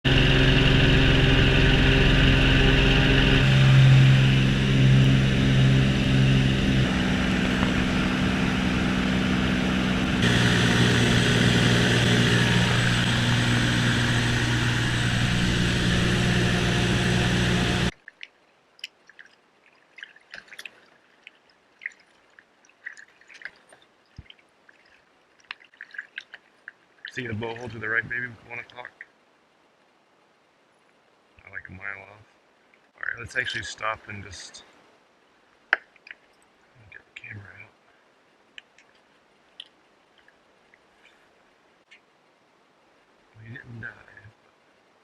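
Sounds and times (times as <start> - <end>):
engine drone: 0.0 - 17.9
water drips and light splashes: 17.9 - 31.8, 32.4 - 33.5, 35.0 - 42.4.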